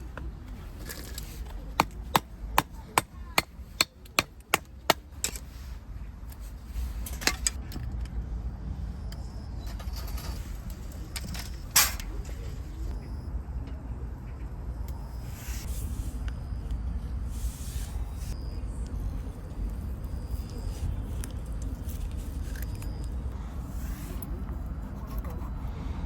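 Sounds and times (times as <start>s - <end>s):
axe chopping wood: 1.6s - 5.1s.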